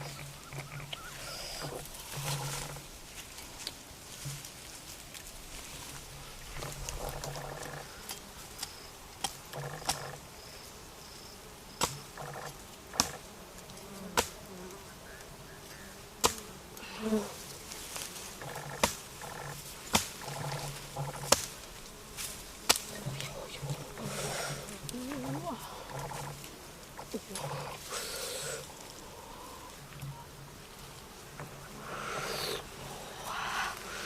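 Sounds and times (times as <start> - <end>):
low insect-like buzz: 0.0 - 34.0.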